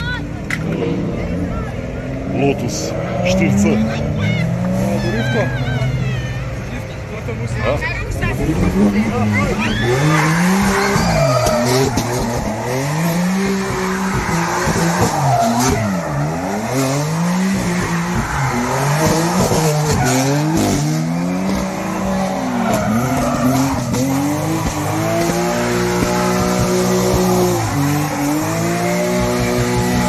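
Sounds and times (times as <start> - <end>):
tyres skidding: 0.0 - 30.0
race car engine revving hard: 0.6 - 6.0, 8.1 - 30.0.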